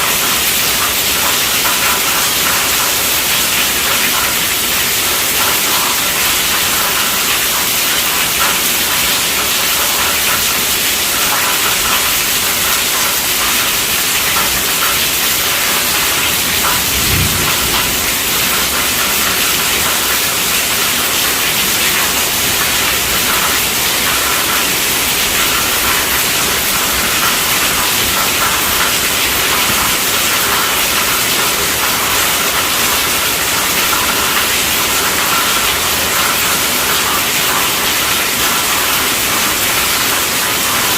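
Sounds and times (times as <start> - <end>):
rain hissing: 10.9 - 38.6
low thud: 16.9 - 18.2.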